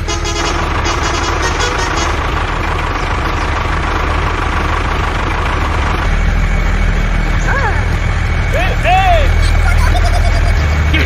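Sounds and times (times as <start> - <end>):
truck horn: 0.0 - 2.6
heavy truck engine running: 0.0 - 11.0.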